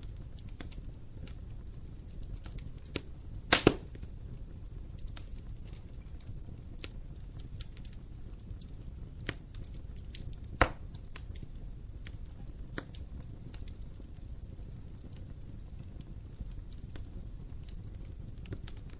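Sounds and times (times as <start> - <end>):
low rumble of fire: 0.0 - 18.9
wood fire snapping: 0.0 - 18.9
loud fire pop: 3.5 - 4.0, 10.6 - 11.0.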